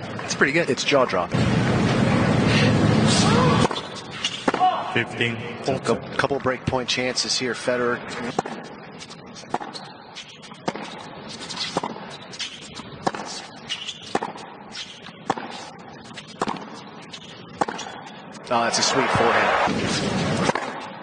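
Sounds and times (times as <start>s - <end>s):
tennis ball struck by racquets: 3.4s - 4.9s, 8.3s - 8.8s, 9.4s - 18.1s, 19.2s - 21.0s.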